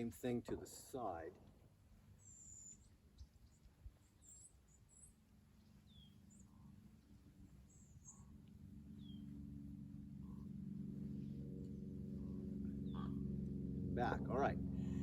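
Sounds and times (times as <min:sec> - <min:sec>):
faint birds chirping: 0:00.0 - 0:15.0
low steady hum: 0:00.0 - 0:15.0.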